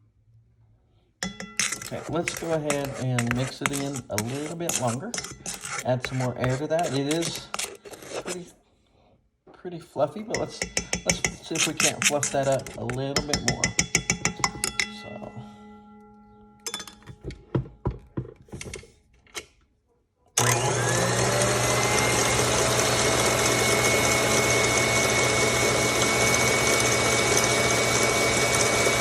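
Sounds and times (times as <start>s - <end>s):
clinks and knocks: 1.2s - 4.2s, 10.4s - 15.5s, 16.6s - 19.5s
electric mixer whipping: 1.6s - 8.4s, 20.4s - 29.0s.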